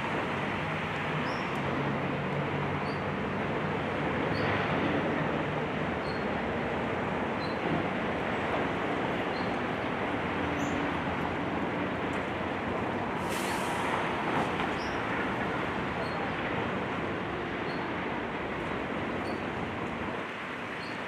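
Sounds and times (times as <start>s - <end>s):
sharp hiss: 13.2s - 14.1s.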